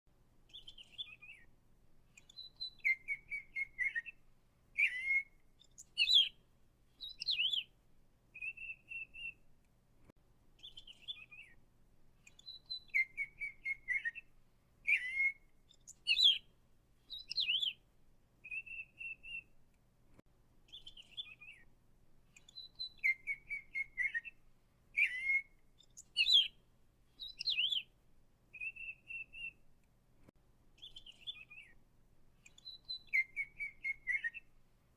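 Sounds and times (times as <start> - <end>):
songbird chirping and whistling: 0.5 - 1.5, 2.1 - 9.5, 10.6 - 11.6, 12.2 - 17.8, 18.4 - 19.5, 20.7 - 21.7, 22.3 - 29.6, 30.8 - 31.8, 32.4 - 34.6.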